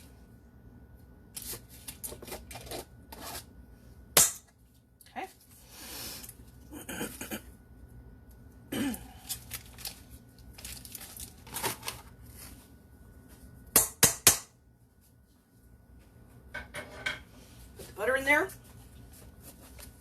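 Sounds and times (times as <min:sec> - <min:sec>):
rustling of packaging: 0:09.2 - 0:12.8.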